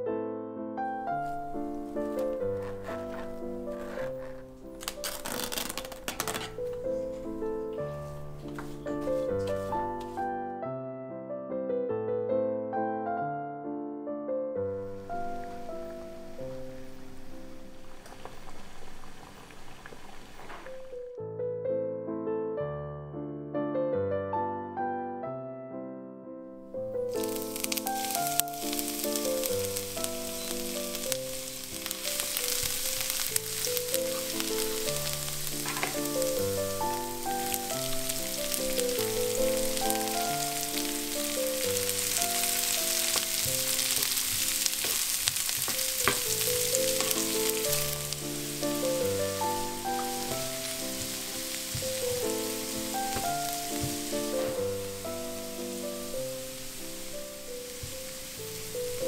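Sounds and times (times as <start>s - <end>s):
piano music: 0.0s - 59.0s
food sizzling in hot oil: 1.2s - 6.6s, 14.9s - 21.0s, 26.8s - 59.0s.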